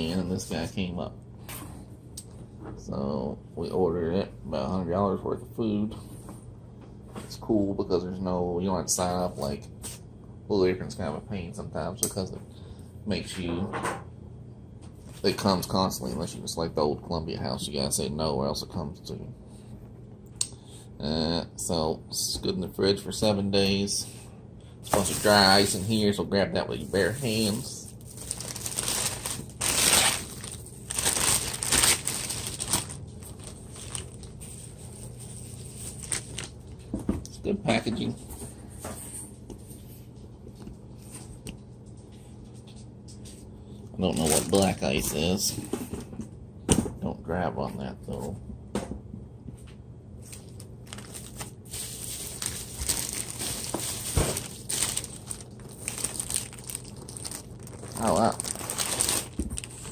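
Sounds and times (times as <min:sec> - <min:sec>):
plastic packaging crinkling: 0:24.9 - 0:26.1, 0:26.8 - 0:36.8, 0:44.1 - 0:44.8, 0:50.2 - 0:59.9.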